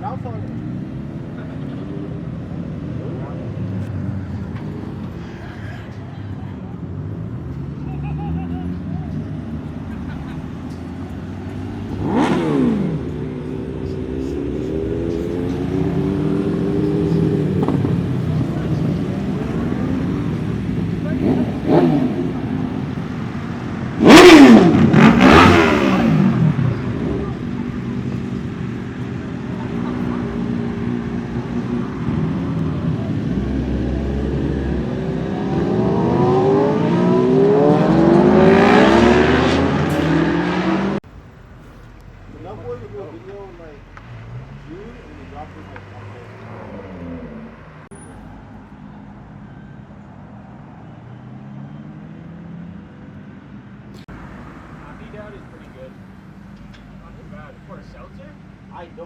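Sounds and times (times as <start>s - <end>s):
car engine revving: 7.6s - 41.0s.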